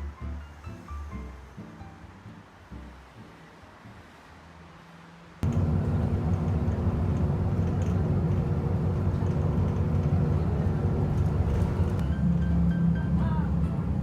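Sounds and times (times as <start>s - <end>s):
constant hum: 5.4s - 14.0s
vehicle engine rumbling: 5.4s - 14.0s.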